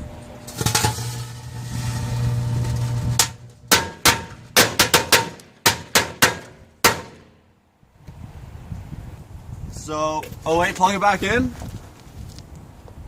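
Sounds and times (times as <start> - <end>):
microwave oven humming: 0.0 - 4.6
firecrackers banging: 0.5 - 7.4.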